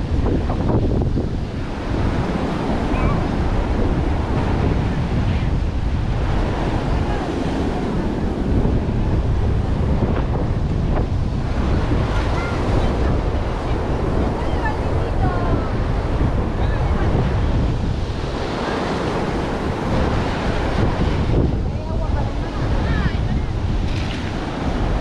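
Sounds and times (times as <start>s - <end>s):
surf washing on beach: 0.0s - 25.0s
wind buffeting microphone: 0.0s - 25.0s.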